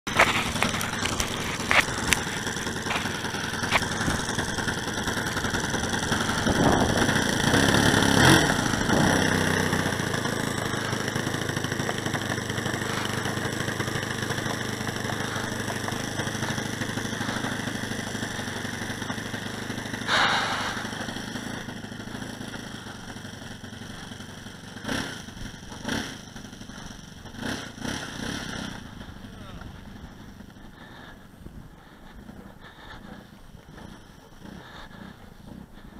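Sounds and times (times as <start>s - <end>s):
model plane engine running: 0.1s - 35.9s.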